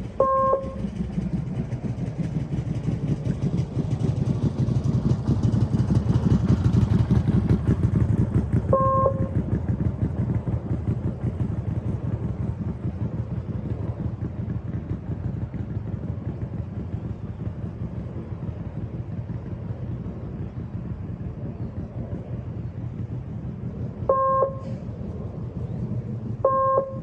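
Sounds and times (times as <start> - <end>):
motorcycle engine running: 0.0 - 27.0
short electronic beep: 8.8 - 9.3, 24.1 - 24.6, 26.5 - 27.0.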